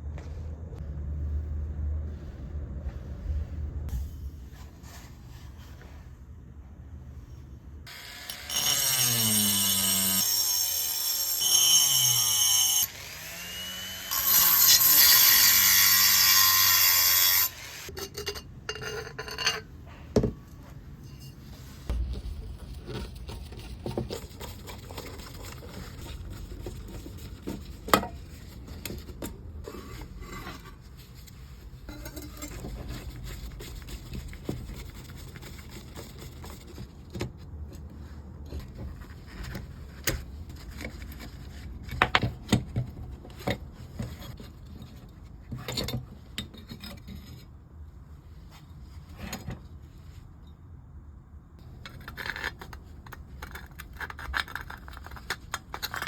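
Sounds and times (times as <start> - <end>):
tools and metal parts clicking: 17.9 - 19.7.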